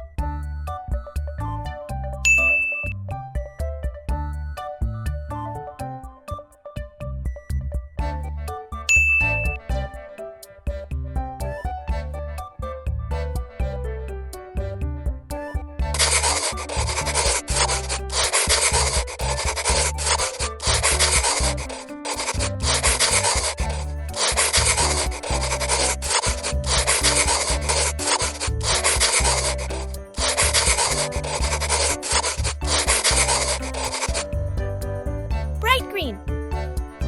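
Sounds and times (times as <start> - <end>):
faint music: 0.0 - 37.0
pen scribbling on paper: 15.9 - 34.3.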